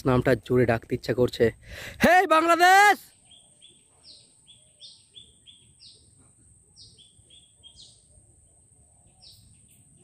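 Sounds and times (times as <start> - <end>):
faint bird calls: 3.1 - 10.0.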